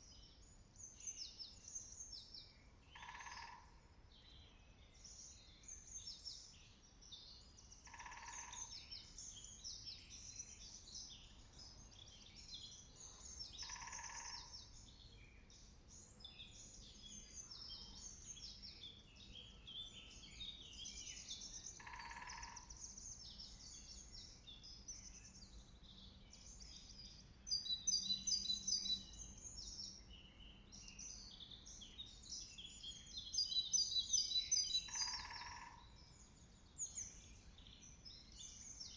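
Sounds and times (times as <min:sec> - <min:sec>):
birdsong chorus: 0:00.0 - 0:38.9
songbird rapid trill: 0:21.7 - 0:22.8, 0:33.6 - 0:35.7.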